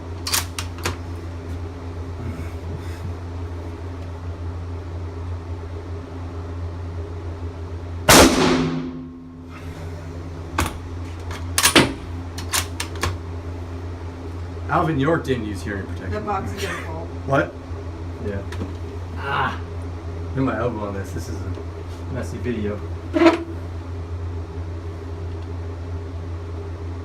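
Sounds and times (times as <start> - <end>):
low hum: 0.0 - 27.0
rifle shot indoors: 8.1 - 9.3.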